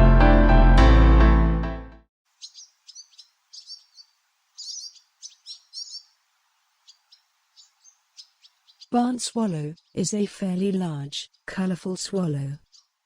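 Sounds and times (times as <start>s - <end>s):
faint hiss: 2.3s - 8.9s
swallow chirping: 2.4s - 6.2s, 6.8s - 13.0s.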